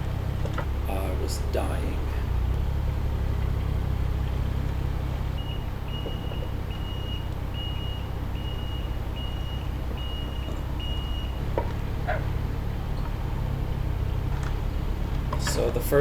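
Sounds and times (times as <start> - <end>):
diesel engine running: 0.0 - 16.0
travel alarm beeping: 5.3 - 11.5.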